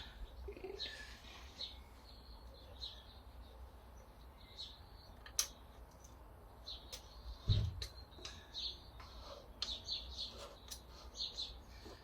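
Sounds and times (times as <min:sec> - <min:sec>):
faint bird chirps: 0:00.0 - 0:05.4
sharp click: 0:05.2 - 0:06.1.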